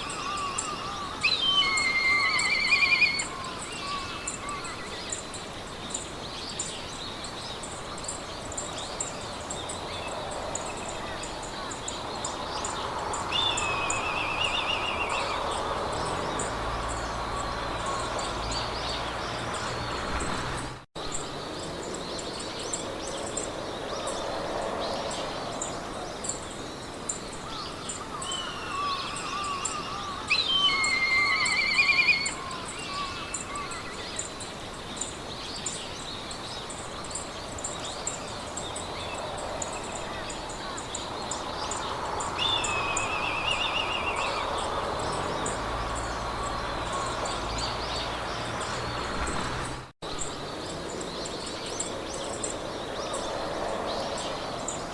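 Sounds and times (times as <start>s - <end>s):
bird trilling song: 0.0s - 5.3s, 5.9s - 19.8s, 27.4s - 34.4s, 35.0s - 49.3s
birds calling and singing: 0.0s - 54.9s
wind through grass: 0.0s - 54.9s.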